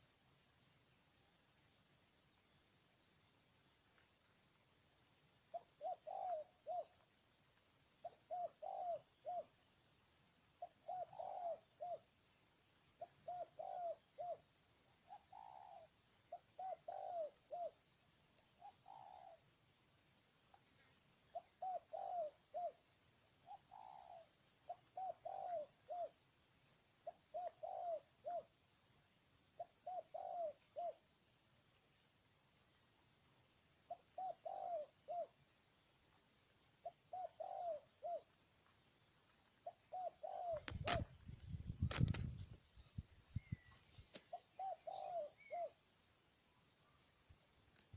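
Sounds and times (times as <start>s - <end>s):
dove cooing: 5.5s - 7.3s, 8.0s - 9.6s, 10.5s - 12.2s, 12.8s - 17.9s, 18.6s - 19.5s, 20.8s - 26.4s, 27.0s - 28.7s, 29.5s - 31.2s, 33.8s - 35.5s, 36.8s - 38.6s, 39.4s - 46.1s.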